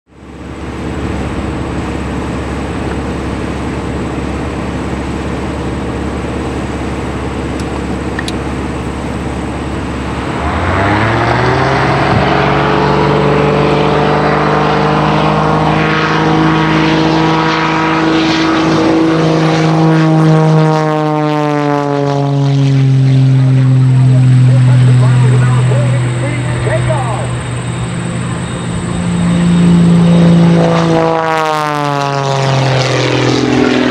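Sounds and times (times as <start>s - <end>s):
propeller plane engine drone: 0.1s - 33.9s
engine throttling up: 5.6s - 20.6s, 21.8s - 33.9s
second higher-pitched engine: 9.7s - 20.3s, 21.8s - 33.9s.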